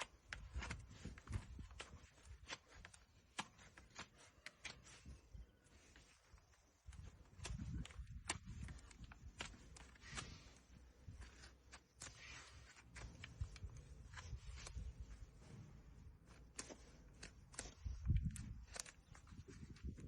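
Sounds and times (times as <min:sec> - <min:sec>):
tools scraping hoof: 0:00.0 - 0:20.0.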